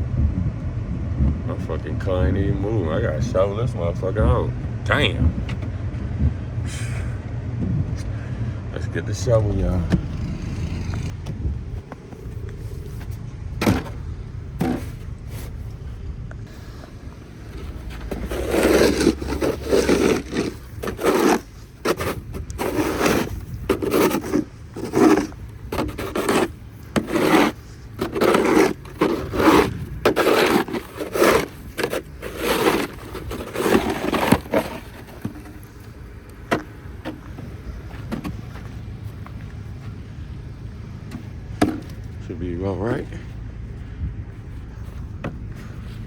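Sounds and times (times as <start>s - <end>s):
snow shovel scraping snow: 9.2s - 11.1s, 14.6s - 15.6s, 16.5s - 35.7s.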